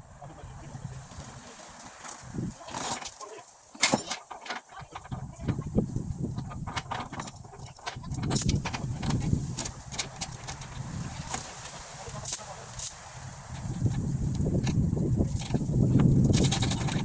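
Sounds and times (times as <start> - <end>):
metallic clinks and jangles: 1.1 - 4.7, 6.6 - 13.0, 13.6 - 17.0.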